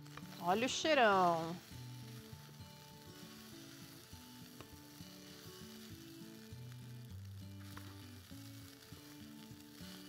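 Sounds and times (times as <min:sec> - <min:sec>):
rice sizzling in oil: 0:00.0 - 0:10.0
soft background music: 0:00.0 - 0:10.0.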